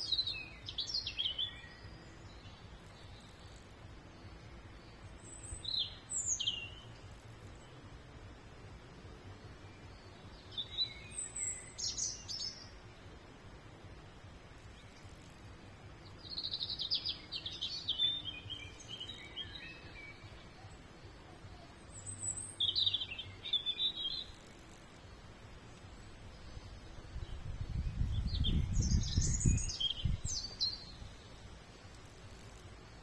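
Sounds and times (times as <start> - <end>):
faint outdoor background noise: 0.0 - 33.0
songbird singing: 0.0 - 33.0.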